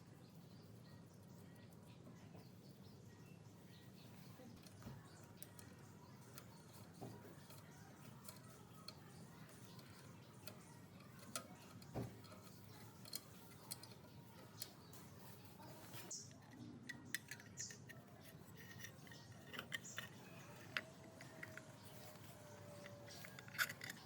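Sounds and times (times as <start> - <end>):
light clicks and ticks: 4.2 - 15.0.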